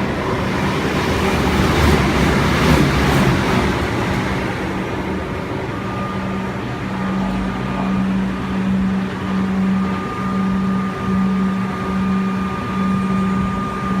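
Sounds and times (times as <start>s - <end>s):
diesel train engine hum: 0.0s - 14.0s
high whine: 0.0s - 14.0s.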